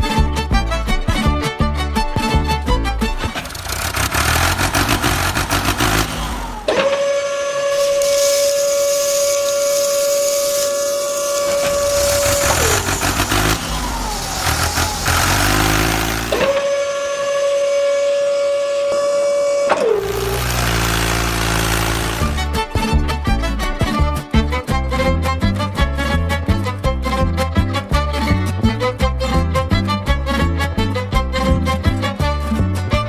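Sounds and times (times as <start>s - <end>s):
small electric motor whining: 3.2s - 22.5s.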